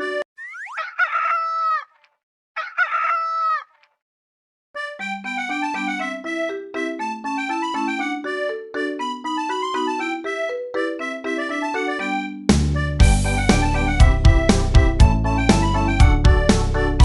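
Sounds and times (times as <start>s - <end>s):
bouncy keyboard tune: 0.0s - 0.2s, 4.8s - 17.0s
rooster crowing: 0.8s - 1.9s, 2.6s - 3.7s.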